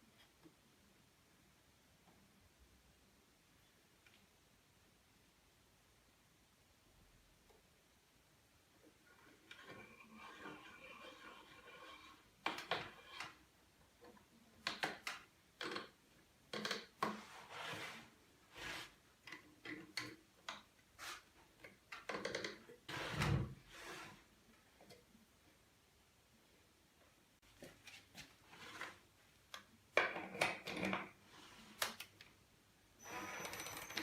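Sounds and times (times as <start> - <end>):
wooden pieces knocking and clicking: 14.6 - 17.2.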